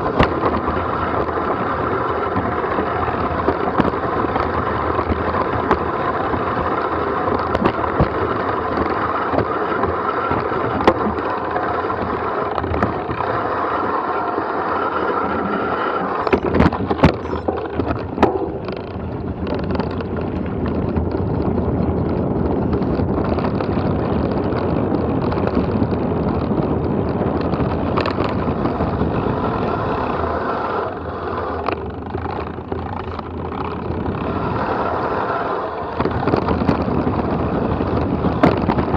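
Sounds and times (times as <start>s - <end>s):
bike tyres rattling on trail: 0.0s - 38.9s
wind on microphone: 0.0s - 38.9s
sharp knocks from bumps: 16.2s - 20.1s.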